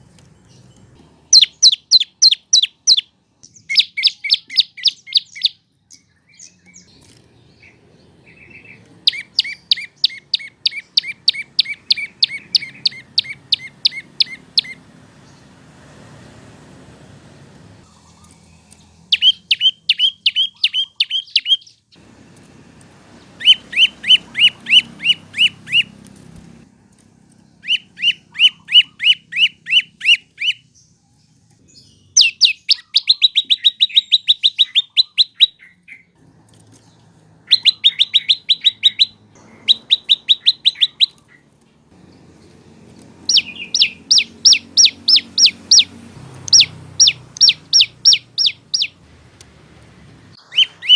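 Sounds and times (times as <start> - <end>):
bird singing sharp chirps: 0.4 - 15.6, 17.8 - 22.0, 23.2 - 26.0, 27.5 - 31.0, 31.7 - 36.2, 37.3 - 42.5, 43.1 - 49.0, 50.3 - 50.9.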